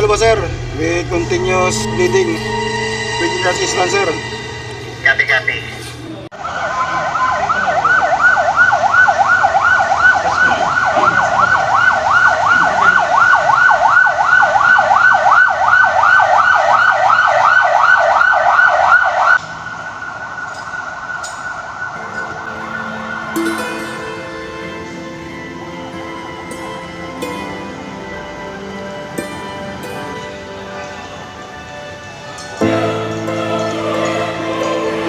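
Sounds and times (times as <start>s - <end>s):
electronic siren yelping: 6.4s - 19.4s.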